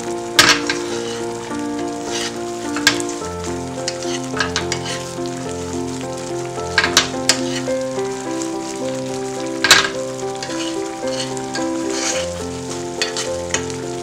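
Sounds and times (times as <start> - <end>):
food sizzling in a pan: 0.0 - 14.0
soft background music: 0.0 - 14.0
spoon scraping a pan: 0.4 - 3.2, 3.9 - 5.1, 6.8 - 7.7, 9.7 - 13.8.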